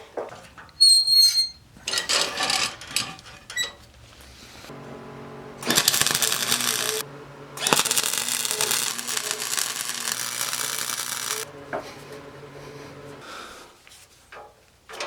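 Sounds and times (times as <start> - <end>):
faint hum: 4.3 - 13.6
loud tool hiss: 4.7 - 13.2.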